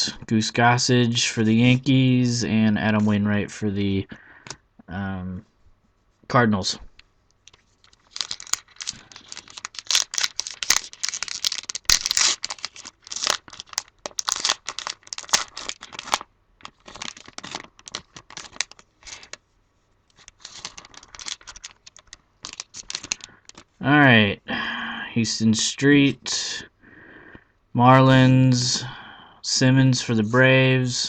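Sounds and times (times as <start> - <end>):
wrapper tearing and crinkling: 7.5 - 19.4, 20.1 - 23.8.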